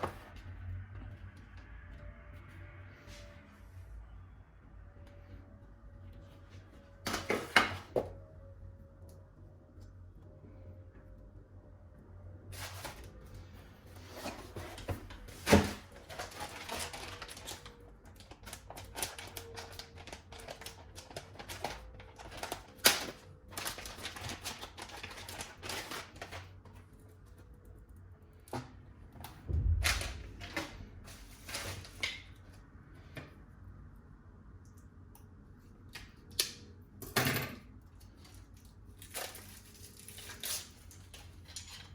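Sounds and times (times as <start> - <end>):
packaging rustling: 14.0 - 26.5
dull thump: 29.5 - 30.8.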